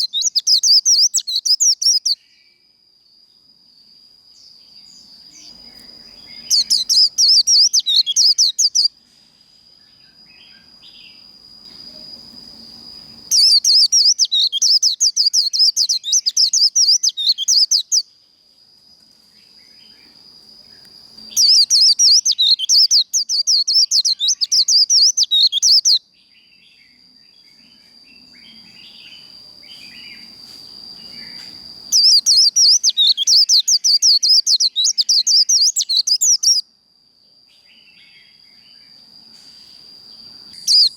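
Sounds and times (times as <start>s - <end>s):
bird rapid warbling song: 0.0s - 2.4s, 4.8s - 8.9s, 13.1s - 18.1s, 21.3s - 27.5s, 31.0s - 36.6s, 40.6s - 40.9s.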